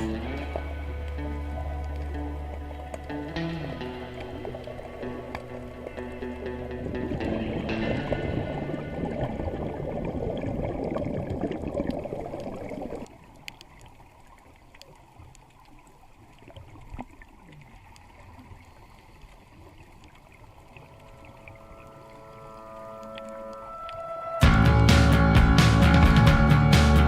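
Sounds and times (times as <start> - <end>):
music: 0.0 - 9.3, 20.8 - 27.0
quiet water hiss: 0.0 - 24.4
faint clicks: 0.4 - 3.2, 12.4 - 24.1
underwater rushing bubbling hiss: 7.1 - 13.2.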